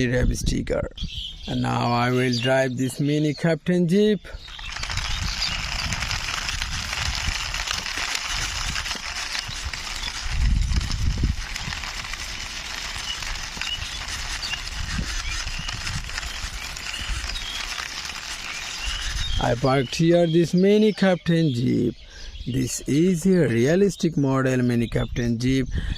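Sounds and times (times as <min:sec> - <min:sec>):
toy wheels scraping over ground: 0:03.9 - 0:20.8.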